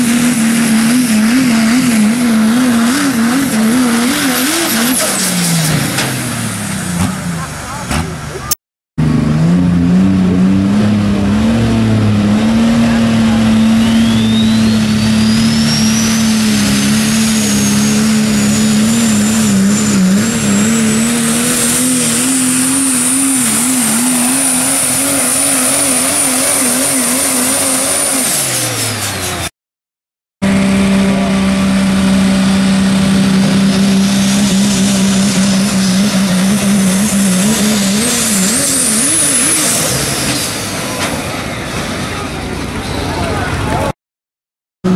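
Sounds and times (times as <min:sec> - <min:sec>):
diesel pulling truck engine revving: 0:00.0 - 0:29.5, 0:30.4 - 0:43.9
turbocharger whine: 0:09.0 - 0:29.5, 0:30.4 - 0:43.2.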